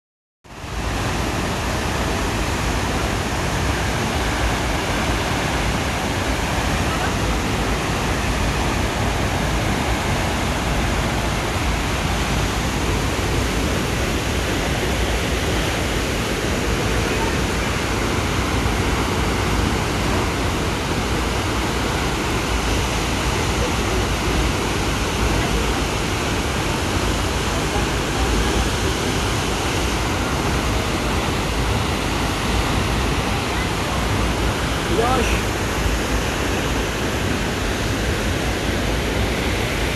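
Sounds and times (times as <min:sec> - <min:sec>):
waterfall rushing: 0:00.5 - 0:39.9.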